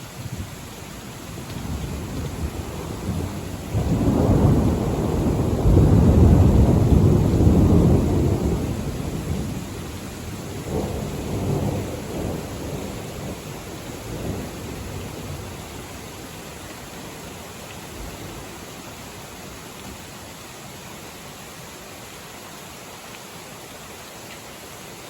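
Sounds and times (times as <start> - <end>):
rain hissing: 0.0 - 25.0
thunder rumbling: 1.4 - 16.5.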